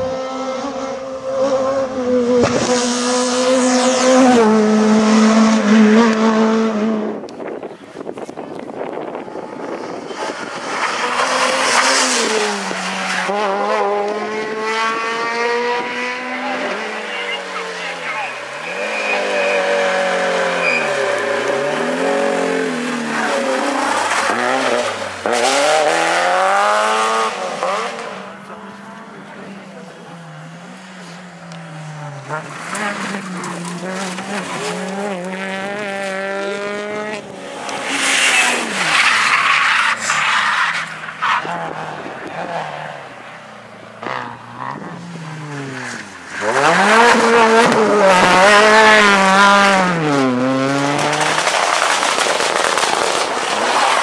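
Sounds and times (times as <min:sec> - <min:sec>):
rally car engine high revs: 0:00.0 - 0:07.2, 0:09.3 - 0:43.0, 0:44.0 - 0:54.0
sharp crack: 0:50.8 - 0:54.0.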